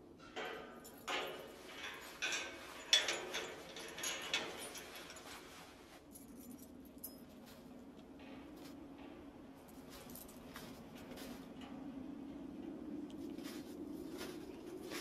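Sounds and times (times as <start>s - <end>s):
low steady hum: 0.0s - 15.0s
keys jangling: 0.8s - 5.3s, 6.1s - 7.6s.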